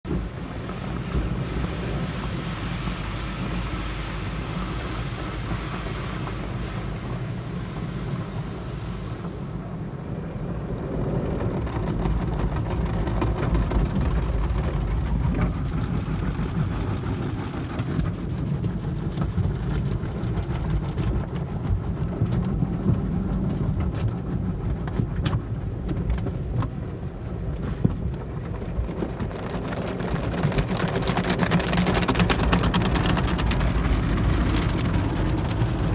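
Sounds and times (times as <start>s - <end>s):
low rumble of car wash: 0.0s - 35.9s
car wash spraying hiss: 0.1s - 9.7s.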